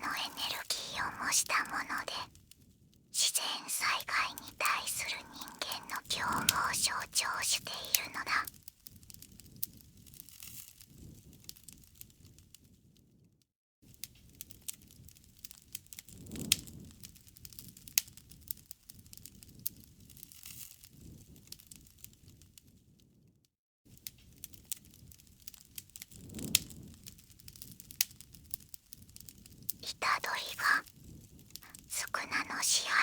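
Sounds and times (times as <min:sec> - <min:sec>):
campfire crackling and popping: 0:24.4 - 0:29.8, 0:31.6 - 0:31.9.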